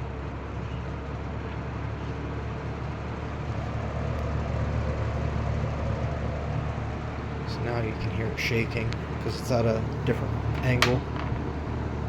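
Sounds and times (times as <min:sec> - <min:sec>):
box fan rushing air and humming: 0:02.7 - 0:12.0
fan shaking on stand: 0:07.3 - 0:12.0.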